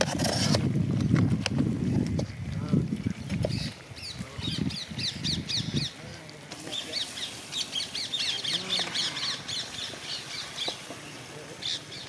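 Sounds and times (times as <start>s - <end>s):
bird chirping rapidly: 3.5s - 6.0s, 6.6s - 12.0s
low background voices: 5.7s - 12.0s.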